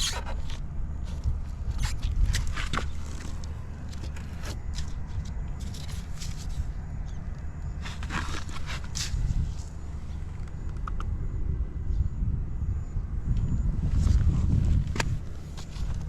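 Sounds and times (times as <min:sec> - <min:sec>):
clicks and scrapes of handling: 0:00.0 - 0:11.1, 0:14.9 - 0:16.0.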